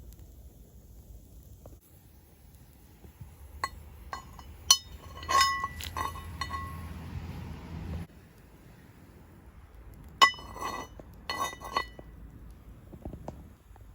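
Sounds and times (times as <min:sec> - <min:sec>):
camp cookware clinking: 0:03.2 - 0:07.0, 0:10.1 - 0:12.2.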